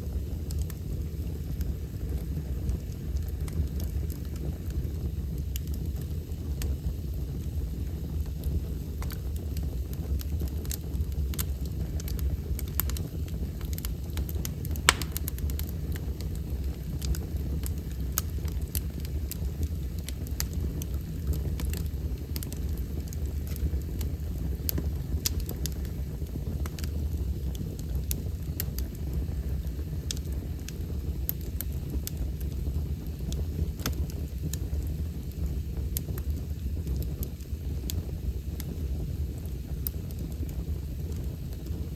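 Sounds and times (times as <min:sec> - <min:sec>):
fire low rumble: 0:00.0 - 0:41.9
wood fire crackling and popping: 0:00.0 - 0:41.9.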